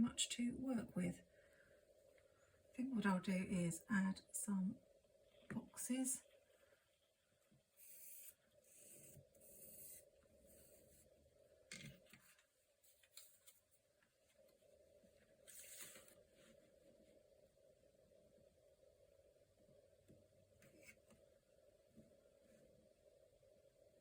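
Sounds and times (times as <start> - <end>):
pencil scratching on paper: 7.8 - 11.0.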